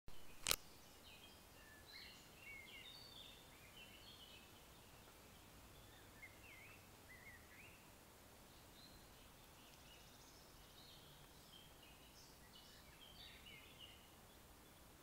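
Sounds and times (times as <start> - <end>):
songbirds singing: 0.2 - 15.0
sharp click: 0.4 - 0.6.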